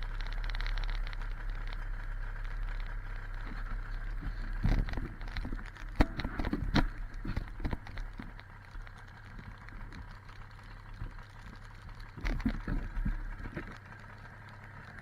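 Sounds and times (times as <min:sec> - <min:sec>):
snowmobile engine idling: 0:00.0 - 0:15.0
irregular knocks and bumps: 0:03.3 - 0:14.2.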